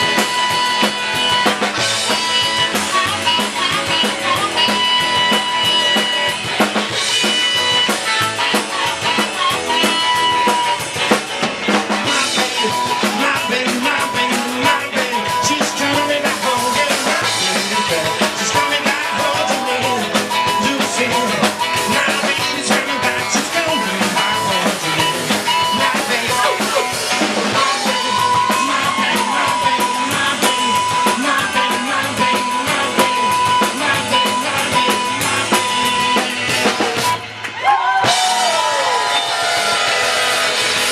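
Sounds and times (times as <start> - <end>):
snare and bass drum beat: 0.0 - 37.2
live rock band playing: 0.0 - 40.9.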